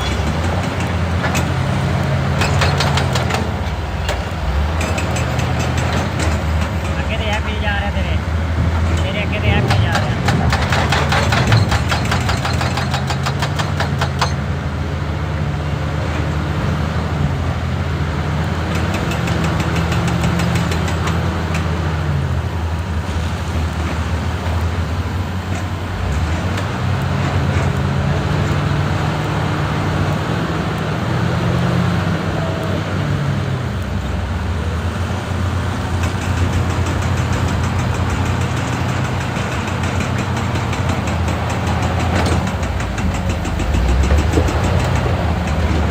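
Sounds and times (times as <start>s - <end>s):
excavator diesel engine running: 0.0s - 45.9s
fast rattling strikes: 36.0s - 45.9s.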